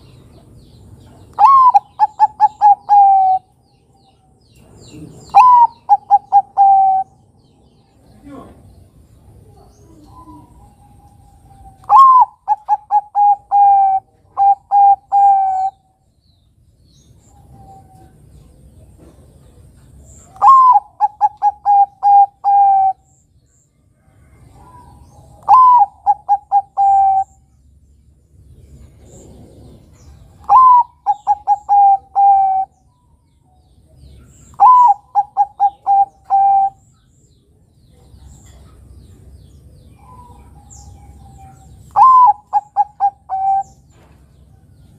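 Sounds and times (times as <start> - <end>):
dove cooing: 1.3 - 3.6, 4.9 - 7.2, 9.4 - 15.9, 19.0 - 23.1, 24.2 - 27.5, 28.9 - 32.8, 33.9 - 36.8, 40.0 - 43.9.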